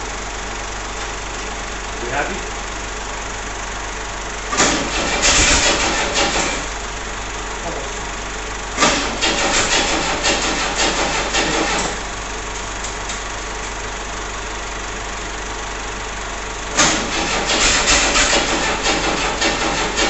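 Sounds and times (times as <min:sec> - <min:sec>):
engine cranking by starter: 0:04.4 - 0:06.8, 0:08.7 - 0:13.8, 0:16.6 - 0:20.0.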